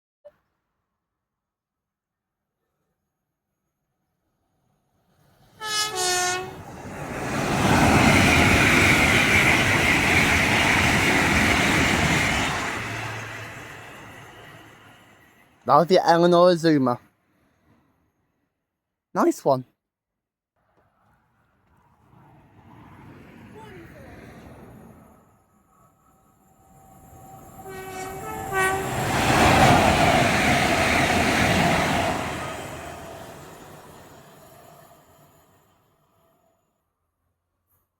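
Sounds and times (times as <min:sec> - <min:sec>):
train wheels rushing on rail: 0:05.0 - 0:15.7, 0:21.5 - 0:36.0
two-note train horn: 0:05.6 - 0:06.6, 0:27.6 - 0:29.1.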